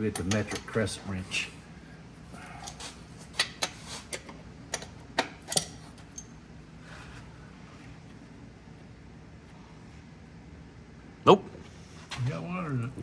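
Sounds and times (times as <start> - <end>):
hand tools clinking on metal: 0.0 - 0.8.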